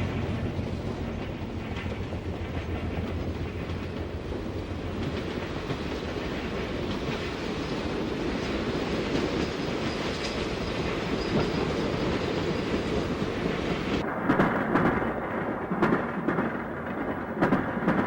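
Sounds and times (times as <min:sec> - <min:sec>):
freight train wheels rumbling: 0:00.0 - 0:14.1.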